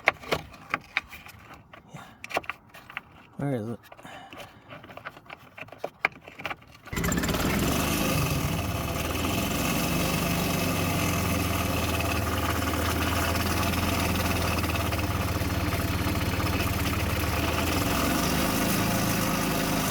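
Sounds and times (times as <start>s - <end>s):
golf cart engine idling: 6.9s - 19.9s.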